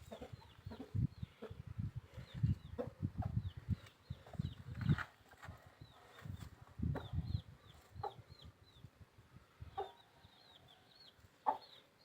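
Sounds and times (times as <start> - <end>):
chicken clucking: 0.0 - 1.6, 7.0 - 8.5, 9.7 - 11.8.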